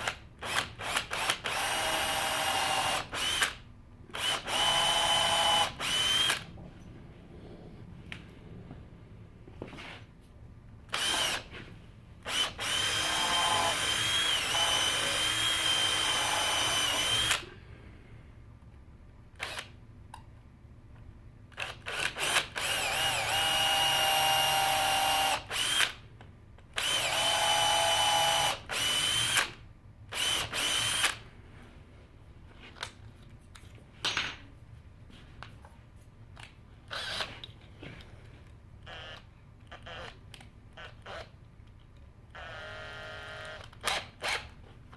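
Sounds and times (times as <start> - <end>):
electric drill whining: 0.0 - 3.6, 4.2 - 6.5, 10.9 - 11.5, 12.3 - 17.5, 21.6 - 26.0, 26.8 - 29.6, 30.2 - 31.2, 36.9 - 37.3, 38.9 - 39.2, 42.4 - 44.5.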